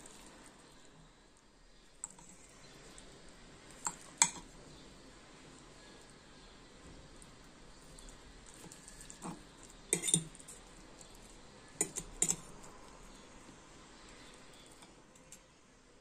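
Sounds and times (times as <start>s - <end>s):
fork clinking on ceramic plate: 8.8s - 10.5s, 11.8s - 12.5s.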